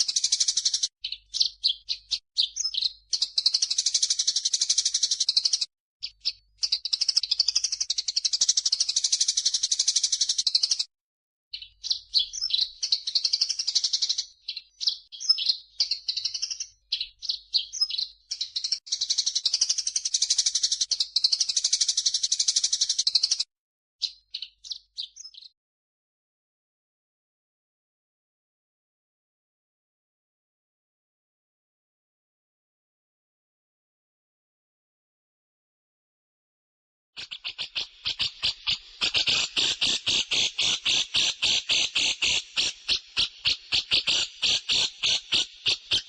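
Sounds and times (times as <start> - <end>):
birds chattering: 37.2 - 46.0.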